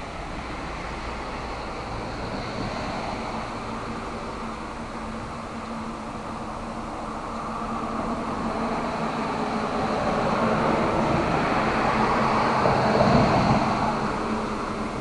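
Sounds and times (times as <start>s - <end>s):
rushing rumble: 0.0s - 15.0s
steady rain: 0.0s - 15.0s.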